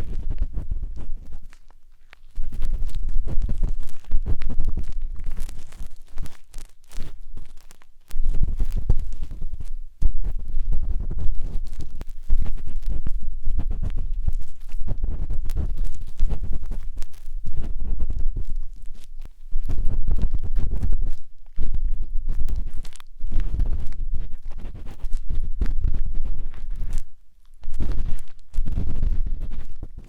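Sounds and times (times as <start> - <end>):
matchstick scratching on microphone: 0.0 - 30.0.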